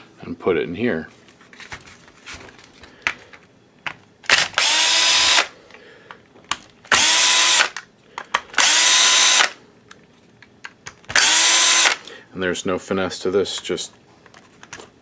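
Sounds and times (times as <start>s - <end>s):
cordless drill whining: 4.3s - 5.6s, 6.9s - 7.8s, 8.6s - 9.6s, 11.1s - 12.1s.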